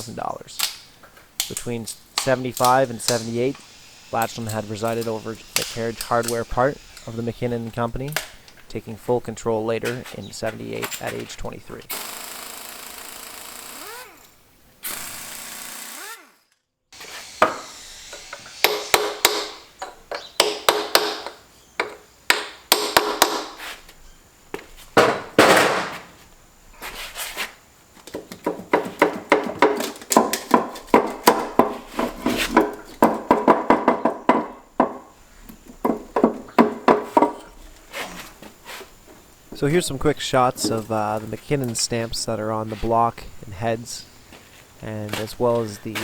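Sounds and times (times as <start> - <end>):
steady hiss: 0.0 - 15.6, 17.0 - 46.0
metal tools clanking on engine parts: 9.8 - 11.5.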